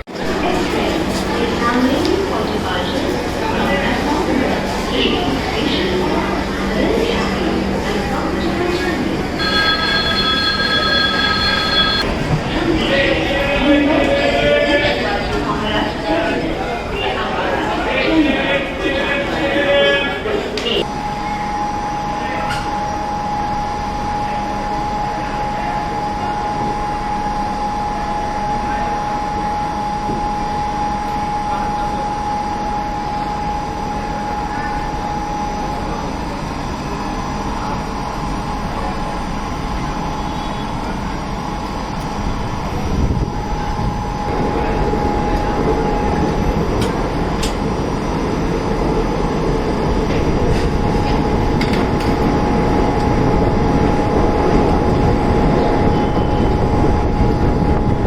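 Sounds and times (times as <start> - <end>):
train running noise inside coach: 0.0 - 58.0
thin high tone: 9.3 - 12.1.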